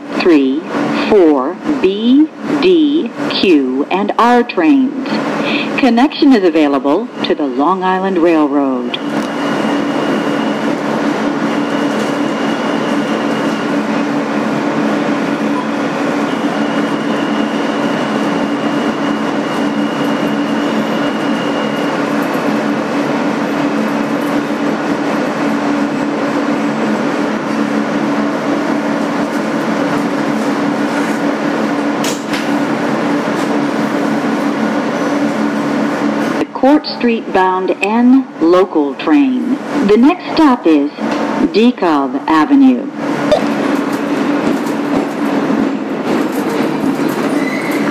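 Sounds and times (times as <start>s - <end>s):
subway car rumble: 0.0s - 47.9s
faint high tone: 43.3s - 43.6s.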